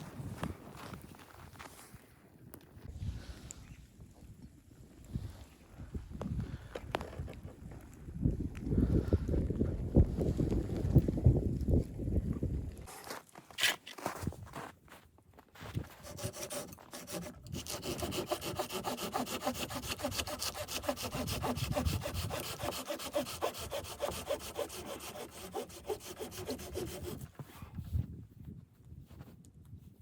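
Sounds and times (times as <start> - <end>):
saw cutting wood: 16.0 - 27.3.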